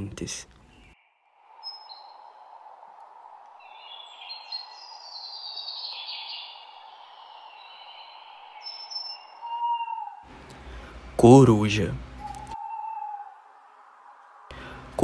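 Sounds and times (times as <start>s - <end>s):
steady background hiss: 0.0s - 15.0s
birds chirping and whistling: 0.6s - 2.4s, 3.6s - 10.3s, 12.1s - 13.4s.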